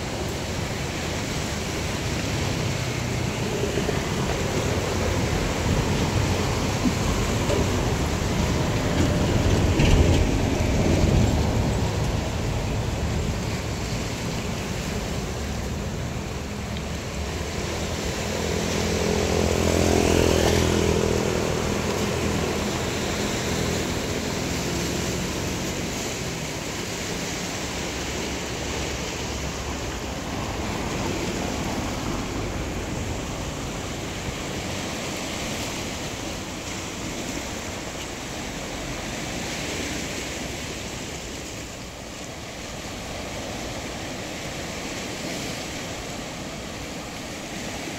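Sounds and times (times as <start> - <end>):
waves washing on shore: 0.0 - 47.9
vehicle passing: 17.4 - 26.0.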